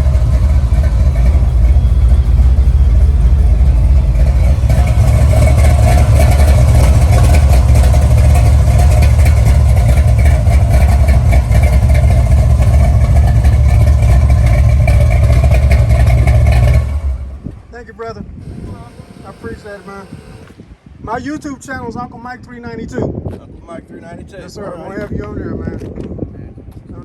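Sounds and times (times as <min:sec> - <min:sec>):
car engine idling loudly: 0:00.0 - 0:20.7.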